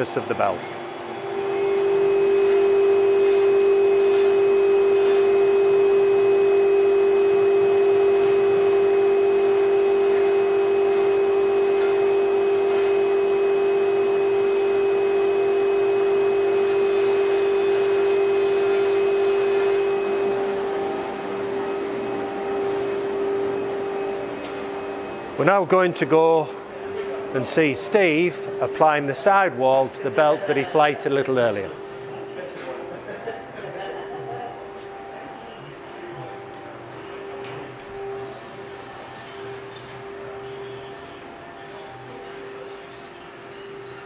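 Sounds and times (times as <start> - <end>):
drilling machine spindle whine: 0.0 - 29.3.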